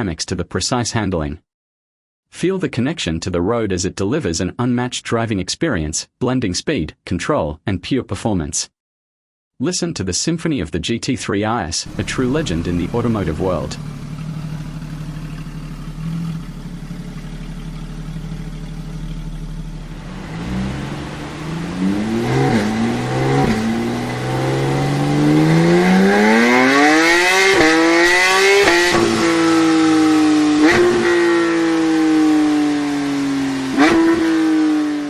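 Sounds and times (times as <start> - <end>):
sports car engine accelerating: 11.9 - 35.0.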